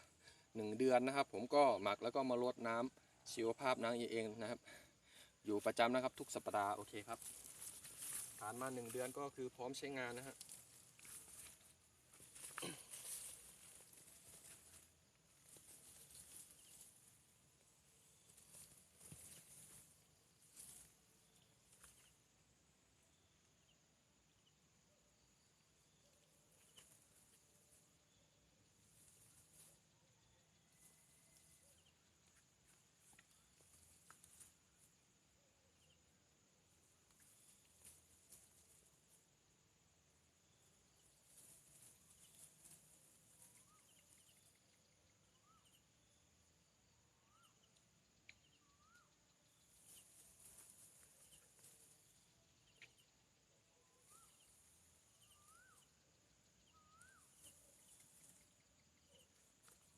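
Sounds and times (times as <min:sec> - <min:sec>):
faint chirps: 0:00.0 - 0:59.9
soft rustles: 0:06.9 - 0:09.2, 0:10.2 - 0:17.2, 0:18.0 - 0:21.0, 0:49.8 - 0:52.1
distant bird calls: 0:47.2 - 0:59.9.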